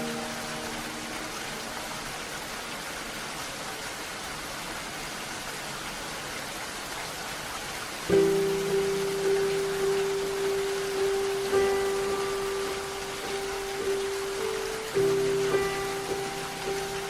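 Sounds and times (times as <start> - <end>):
soft melody: 0.0 - 2.8, 8.1 - 17.0
steady rainfall hiss: 0.0 - 17.0.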